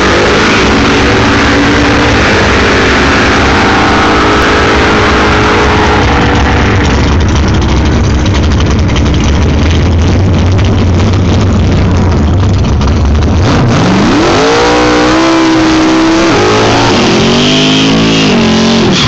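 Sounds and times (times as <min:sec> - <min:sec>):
drag car engine idling: 0:00.0 - 0:14.3.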